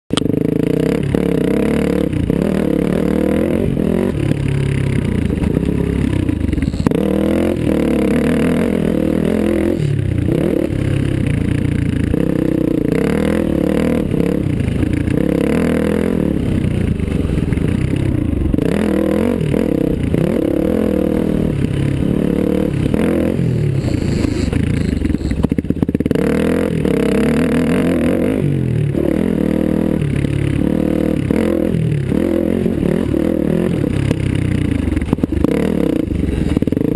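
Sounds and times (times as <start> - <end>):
dirt bike engine revving: 0.1 - 36.9.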